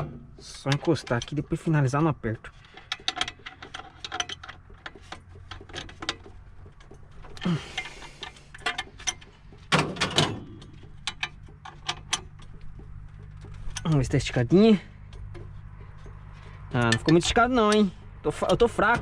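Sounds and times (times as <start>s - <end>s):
metal knocks: 0.0s - 1.5s, 8.6s - 13.8s.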